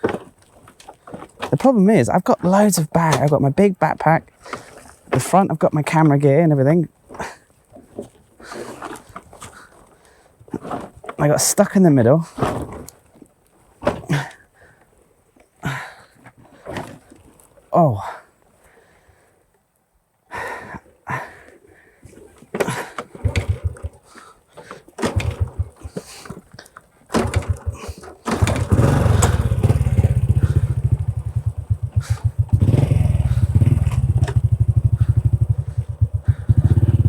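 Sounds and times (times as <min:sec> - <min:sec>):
motorbike engine running: 0:23.2 - 0:24.0, 0:25.1 - 0:26.0, 0:27.2 - 0:37.0
knocks and clatter: 0:27.1 - 0:37.0.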